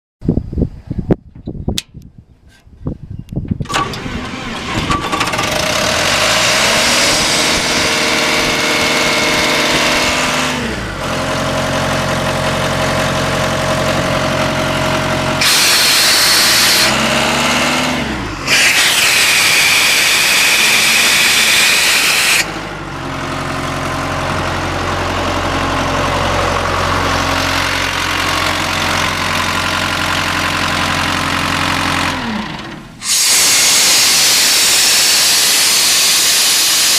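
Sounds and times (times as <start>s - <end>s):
air compressor engine running: 3.6s - 36.9s
hissing rush of air: 15.4s - 17.0s, 18.5s - 22.6s, 33.0s - 36.9s.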